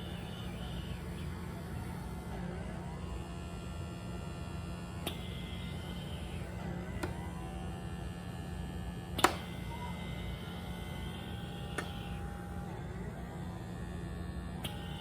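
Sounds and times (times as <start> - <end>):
small vacuum motor humming: 0.0 - 15.0
sharp click: 9.2 - 9.5.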